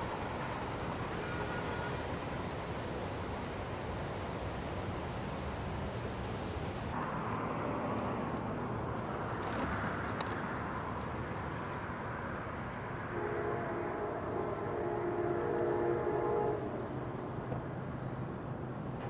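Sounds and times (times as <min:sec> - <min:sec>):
locomotive horn chord: 0:13.1 - 0:16.8.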